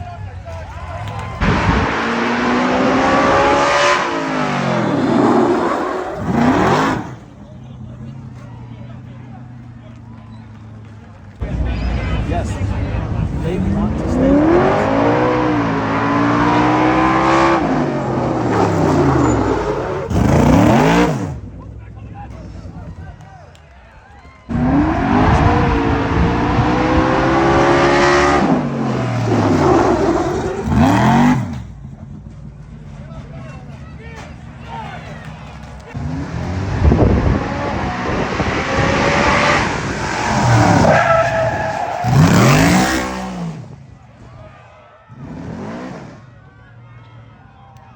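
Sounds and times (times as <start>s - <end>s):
tires squealing: 0.0s - 47.1s
engine revving: 1.0s - 8.2s, 11.4s - 22.9s, 24.5s - 33.7s, 35.0s - 44.0s, 45.1s - 46.3s.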